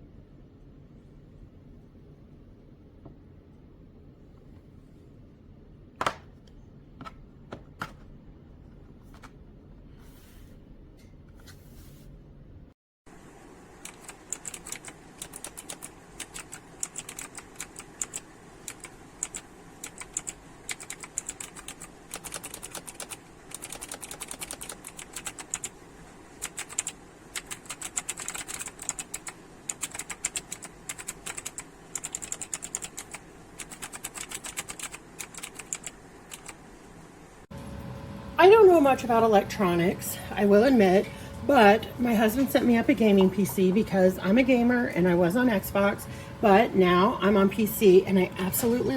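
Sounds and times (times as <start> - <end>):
clicky mechanical keyboard typing: 13.8 - 25.8, 26.4 - 36.6.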